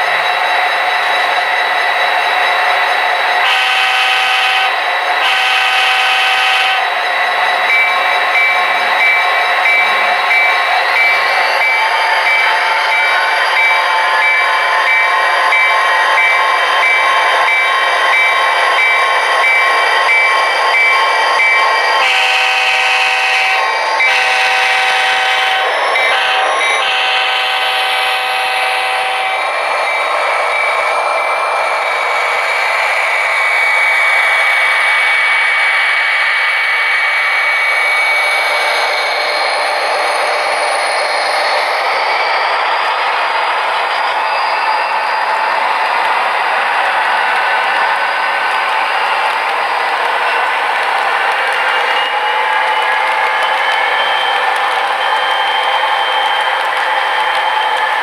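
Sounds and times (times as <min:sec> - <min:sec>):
model locomotive engine drone: 0:00.0 - 0:58.0
locomotive horn: 0:03.4 - 0:06.8, 0:22.0 - 0:29.4
bell ringing: 0:07.4 - 0:21.9, 0:45.6 - 0:58.0.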